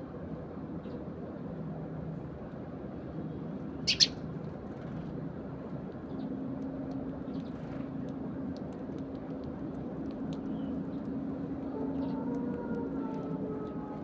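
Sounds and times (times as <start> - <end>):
low steady hum: 0.0 - 14.0
sparrows chirping: 3.8 - 4.2.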